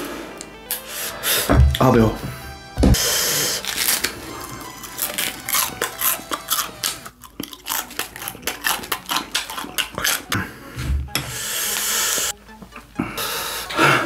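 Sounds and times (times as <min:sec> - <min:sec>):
crunchy chewing of cabbage: 0:03.0 - 0:10.8.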